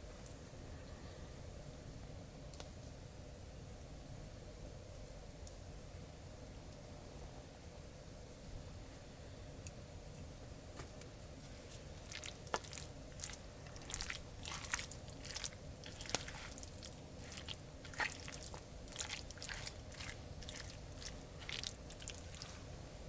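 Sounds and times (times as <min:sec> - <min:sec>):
person chewing and crunching: 0:11.9 - 0:22.6.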